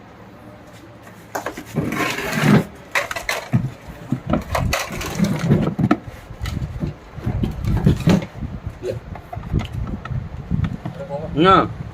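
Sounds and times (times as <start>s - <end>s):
hard objects knocking and clattering: 1.3s - 8.4s.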